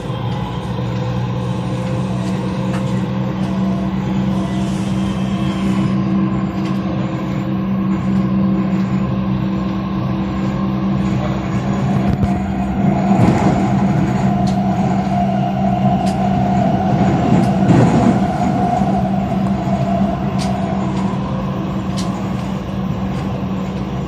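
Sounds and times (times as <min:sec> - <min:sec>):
electric train drive hum: 0:00.0 - 0:24.0
wheels rumbling on rail: 0:00.0 - 0:24.0.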